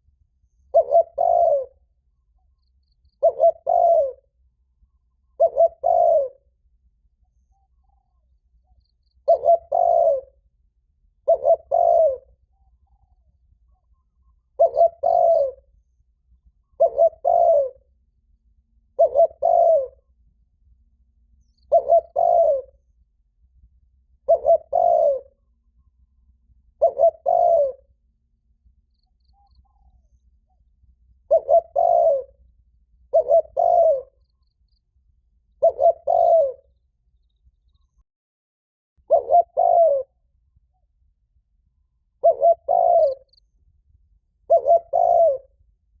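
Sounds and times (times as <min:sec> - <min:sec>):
dove cooing: 0:00.7 - 0:01.8, 0:03.2 - 0:04.4, 0:05.2 - 0:06.4, 0:09.2 - 0:10.4, 0:11.2 - 0:13.2, 0:14.2 - 0:15.7, 0:16.6 - 0:17.8, 0:18.9 - 0:20.1, 0:21.6 - 0:22.8, 0:24.2 - 0:25.5, 0:26.7 - 0:27.9, 0:31.2 - 0:32.4, 0:33.1 - 0:34.3, 0:35.6 - 0:36.7, 0:39.1 - 0:40.2, 0:42.2 - 0:43.3, 0:44.4 - 0:45.6.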